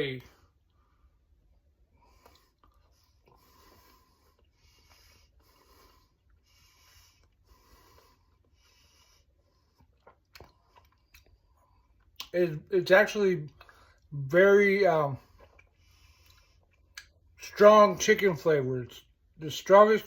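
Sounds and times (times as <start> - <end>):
faint breaths: 0.2 - 12.0, 15.2 - 16.9.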